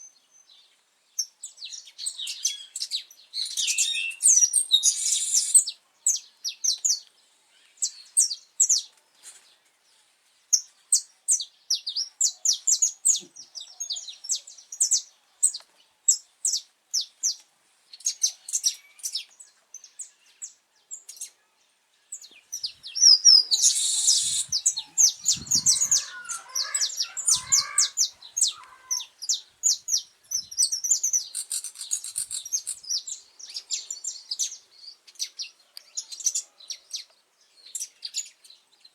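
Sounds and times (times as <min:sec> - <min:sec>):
finch singing: 0:22.1 - 0:38.4.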